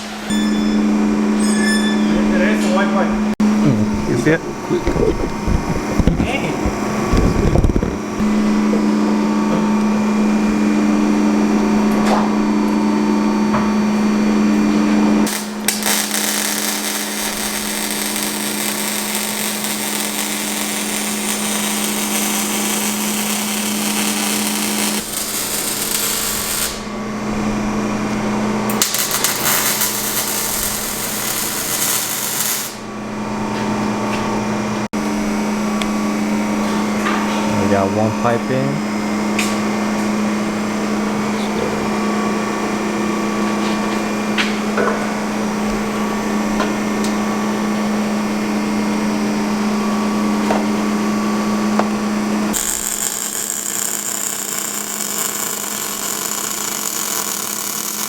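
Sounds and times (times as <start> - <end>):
steady machine hum: 0.0 - 58.0
power tool hissing and grinding: 15.3 - 26.9, 28.7 - 32.8, 52.5 - 58.0.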